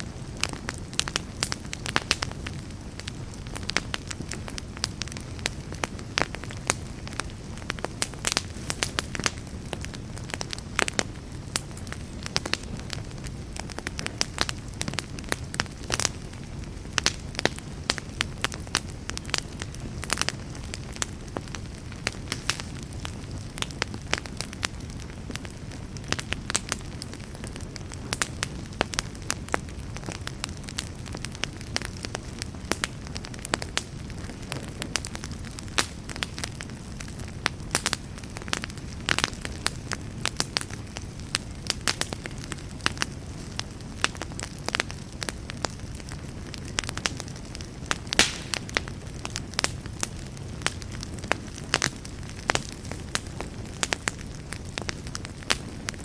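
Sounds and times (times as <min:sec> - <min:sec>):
rush of flame: 0:00.0 - 0:25.4, 0:41.6 - 0:54.3
fire crackling and popping: 0:00.0 - 0:56.0.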